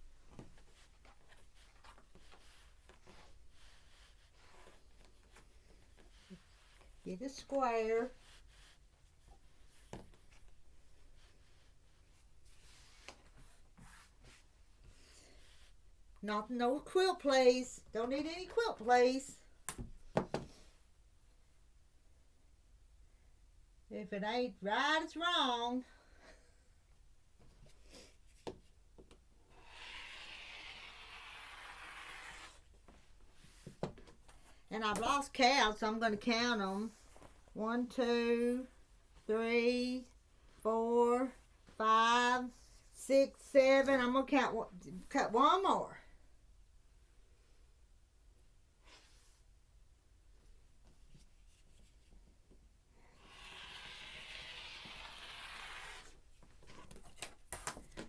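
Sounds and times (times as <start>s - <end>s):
rotary cutter scraping through fabric: 53.2s - 56.1s.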